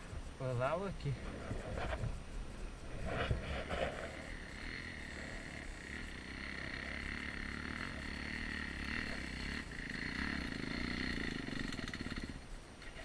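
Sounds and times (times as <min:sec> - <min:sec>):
chirring animal chorus: 0:00.0 - 0:13.0
dirt bike engine idling: 0:00.0 - 0:13.0.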